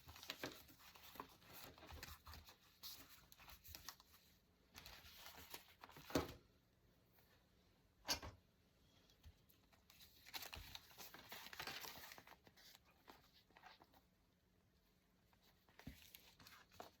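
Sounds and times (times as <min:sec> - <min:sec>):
paper rustling: 0:00.0 - 0:06.4, 0:09.6 - 0:14.1, 0:15.3 - 0:17.0.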